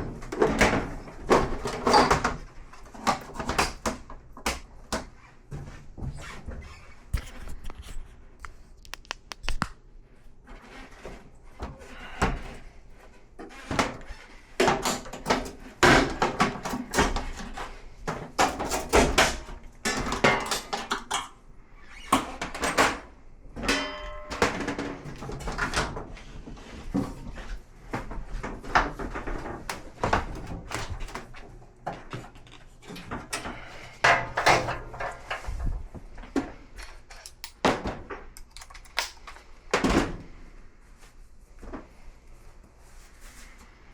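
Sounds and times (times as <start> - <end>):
clicks and knocks of tools: 31.9 - 35.5, 36.4 - 39.5.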